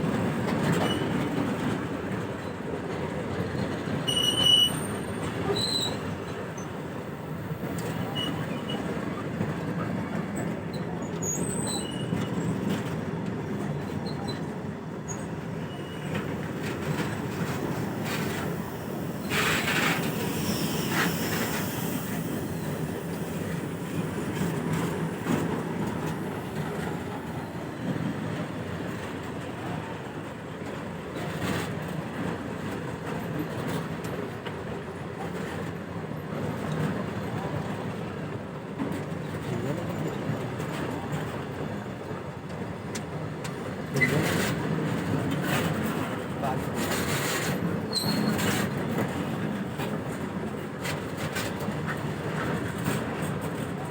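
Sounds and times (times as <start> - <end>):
train wagon wheels rumbling: 0.0 - 53.9
high wheel squeals: 4.0 - 6.8, 7.8 - 8.9, 10.7 - 12.8, 15.1 - 28.3, 46.9 - 48.8
wheel screech: 15.1 - 27.6, 46.9 - 48.7.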